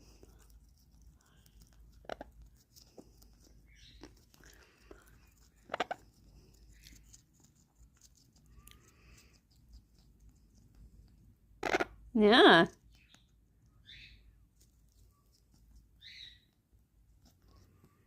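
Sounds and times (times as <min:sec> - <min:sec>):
parrot crunching on carrot: 0:00.0 - 0:12.1.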